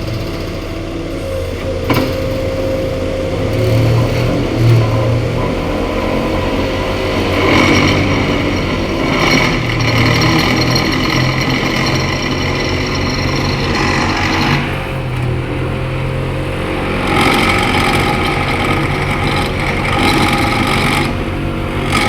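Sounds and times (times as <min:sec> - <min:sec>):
diesel engine running: 0:00.0 - 0:22.0
high-pitched whine: 0:00.0 - 0:22.0.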